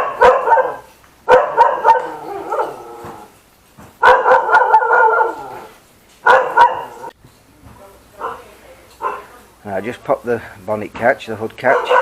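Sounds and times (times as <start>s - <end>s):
dog barking: 0.0s - 3.3s, 4.0s - 7.1s, 8.2s - 9.3s, 11.6s - 12.0s.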